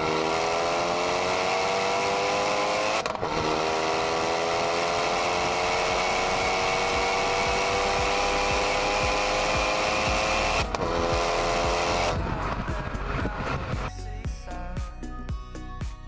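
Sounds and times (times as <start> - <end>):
car engine accelerating: 0.0 - 13.9
music: 5.5 - 16.0.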